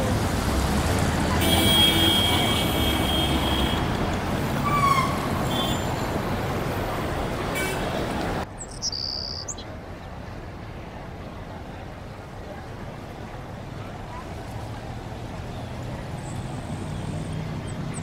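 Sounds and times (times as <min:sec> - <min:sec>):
road traffic hum: 0:00.0 - 0:18.0
birds chirping: 0:07.6 - 0:09.7.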